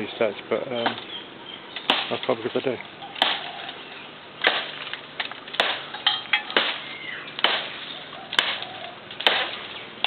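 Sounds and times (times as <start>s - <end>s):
blade chopping into wood: 1.8s - 2.3s, 3.2s - 3.5s, 4.4s - 4.9s, 5.6s - 5.9s, 6.5s - 9.8s.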